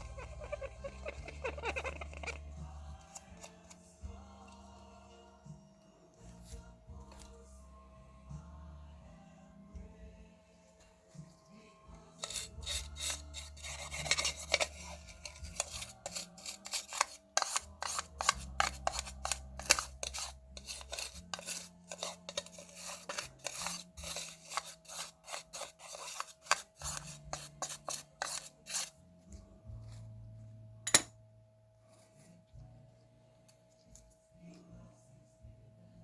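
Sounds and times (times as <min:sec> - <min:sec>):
small tools scraping and clicking: 0:03.0 - 0:03.8, 0:12.2 - 0:29.0.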